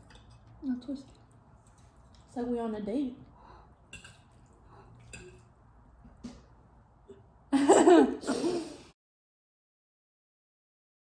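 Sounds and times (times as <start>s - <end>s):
woman laughing loudly: 7.5s - 8.8s.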